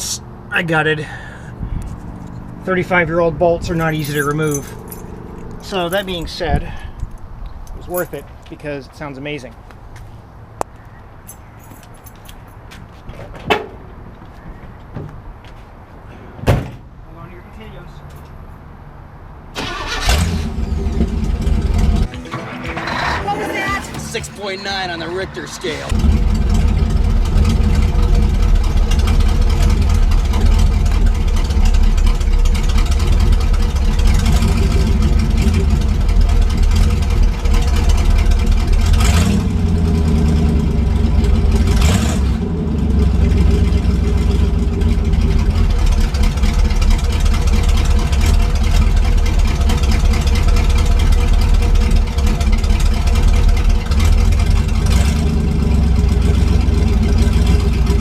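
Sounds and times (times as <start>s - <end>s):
loud engine idling: 19.6s - 58.0s.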